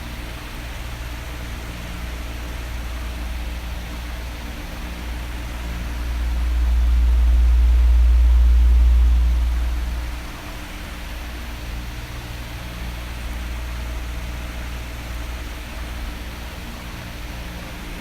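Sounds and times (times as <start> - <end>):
electric fan running: 0.0 - 18.0
heavy low rumble: 2.4 - 14.7.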